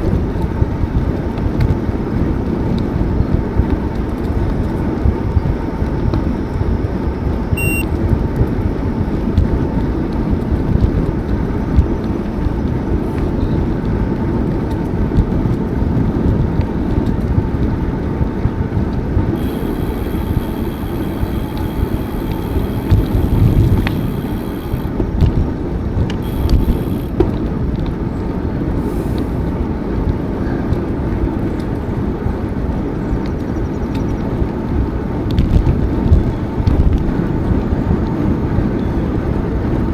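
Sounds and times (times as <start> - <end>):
wind buffeting microphone: 0.0 - 39.9
thin high steady tone: 7.6 - 7.9, 19.4 - 24.9, 26.2 - 27.1.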